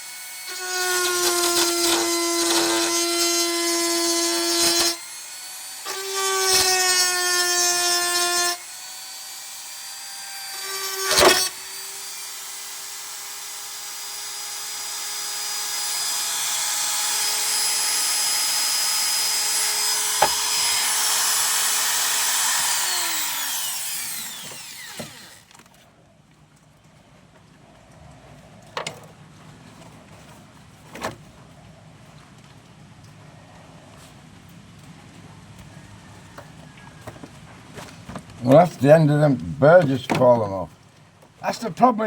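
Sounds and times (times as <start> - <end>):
power tool motor whining: 0.0 - 25.7.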